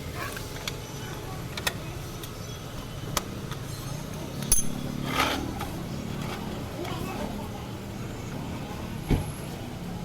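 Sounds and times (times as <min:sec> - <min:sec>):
sharp metallic clinks: 0:04.4 - 0:05.0
rustling scrape: 0:05.0 - 0:05.5.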